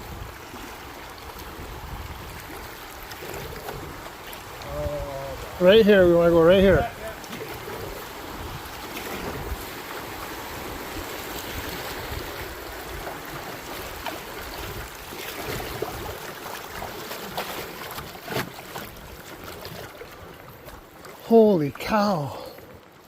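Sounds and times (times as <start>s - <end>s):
wind on the microphone: 0.0s - 13.4s
river water rushing: 0.0s - 23.0s.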